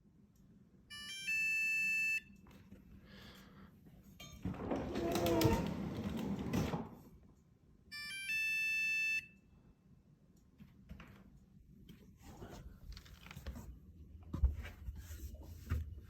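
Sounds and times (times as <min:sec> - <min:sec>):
refrigerator control beeping: 0:00.9 - 0:02.4, 0:07.9 - 0:09.4.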